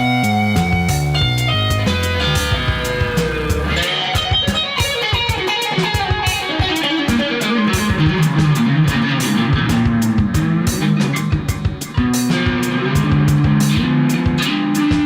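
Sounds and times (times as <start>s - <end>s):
bass: 0.0s - 4.6s, 7.8s - 15.0s
drums: 0.0s - 15.0s
layered electric guitars: 0.0s - 15.0s.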